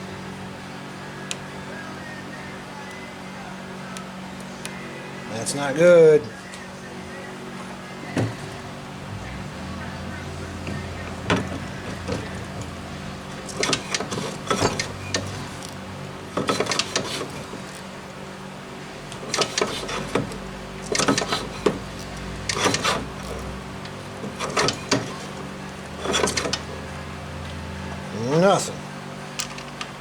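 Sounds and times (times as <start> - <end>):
steady low hum: 0.0 - 30.0
engine turned over by hand: 8.1 - 18.2, 19.0 - 30.0.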